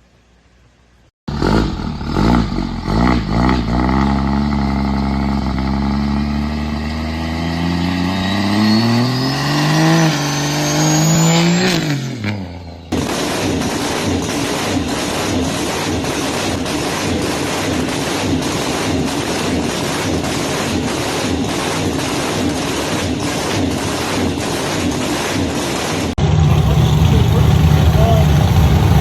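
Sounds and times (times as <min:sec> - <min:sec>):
car engine revving and accelerating: 0:01.3 - 0:12.9, 0:26.2 - 0:29.0
noisier car sound: 0:01.3 - 0:29.0.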